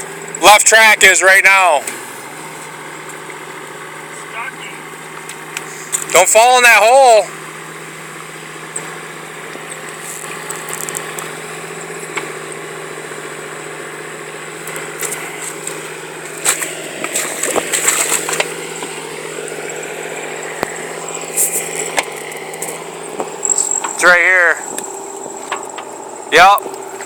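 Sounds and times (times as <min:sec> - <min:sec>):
tracked machine engine idling: 0:00.0 - 0:27.0
clicks and clatter: 0:09.7 - 0:11.4, 0:14.6 - 0:19.6, 0:20.6 - 0:26.0.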